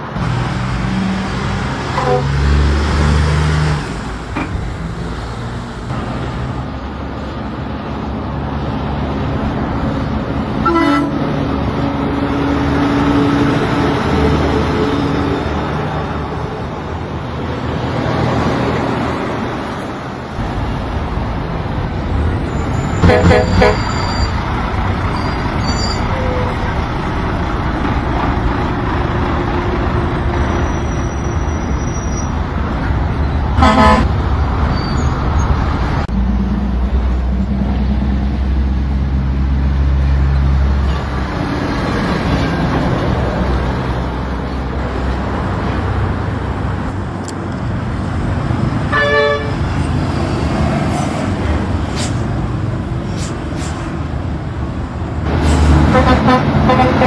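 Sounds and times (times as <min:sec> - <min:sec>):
road noise: 0:00.0 - 0:57.0
truck engine: 0:00.0 - 0:57.0
truck horn toots: 0:01.7 - 0:03.1, 0:10.6 - 0:11.3, 0:22.7 - 0:24.4, 0:33.6 - 0:34.2, 0:48.9 - 0:49.6, 0:55.6 - 0:57.0.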